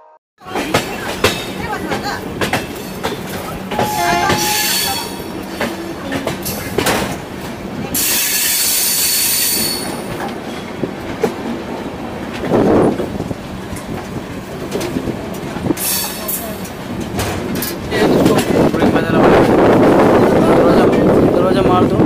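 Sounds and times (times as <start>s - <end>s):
train wheels clicking over joints: 0.4s - 21.3s
high wheel squeal: 3.7s - 6.0s, 8.0s - 10.1s.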